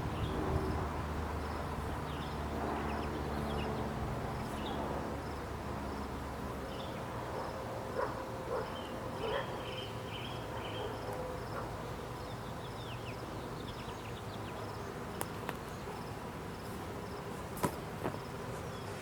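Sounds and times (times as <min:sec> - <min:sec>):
bee swarm buzzing: 0:12.7 - 0:19.0.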